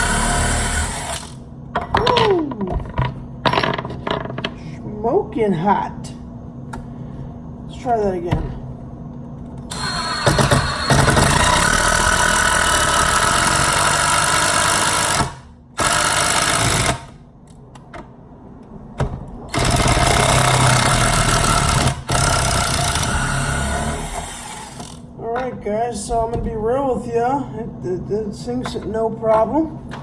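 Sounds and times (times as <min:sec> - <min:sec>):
impact driver hammering: 0:10.2 - 0:17.1.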